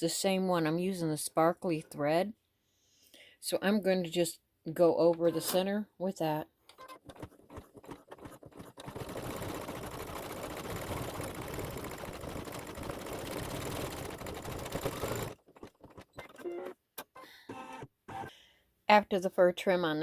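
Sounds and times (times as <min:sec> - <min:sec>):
embroidery machine stitching: 0:06.8 - 0:18.3.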